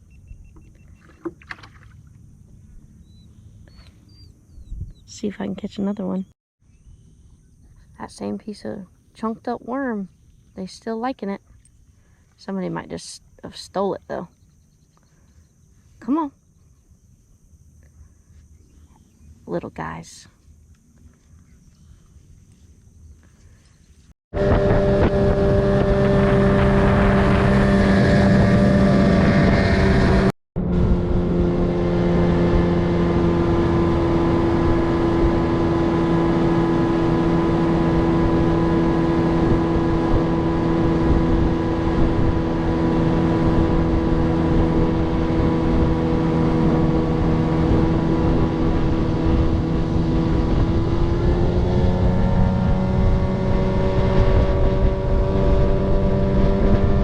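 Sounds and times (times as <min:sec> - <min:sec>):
outboard motor running: 0:00.0 - 0:04.3, 0:24.3 - 0:57.0.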